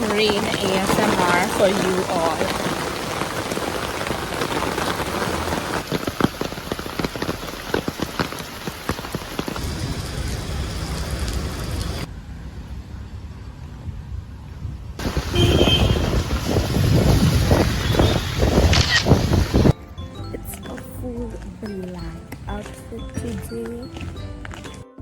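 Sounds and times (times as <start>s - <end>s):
rain drops ticking on hard surface: 0.0s - 12.1s.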